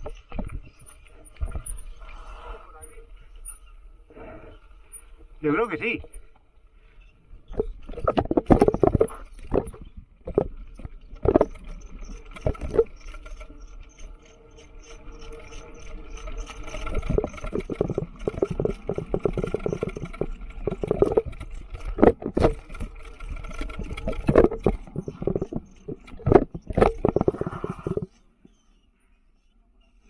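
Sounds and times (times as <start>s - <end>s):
mountain bike rattling and knocking: 7.4s - 28.6s.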